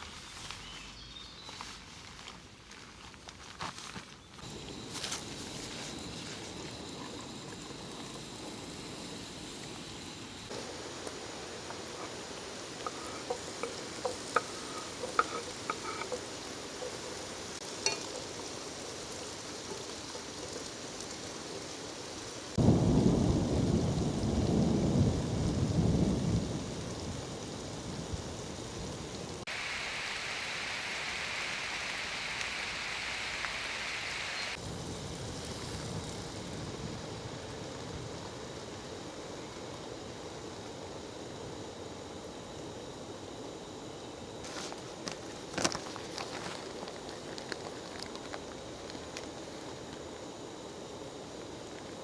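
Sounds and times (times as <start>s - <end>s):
high hiss: 4.4s - 52.0s
steady rain: 4.4s - 52.0s
light clinks: 17.7s - 18.4s
low thunder rumble: 22.6s - 29.4s.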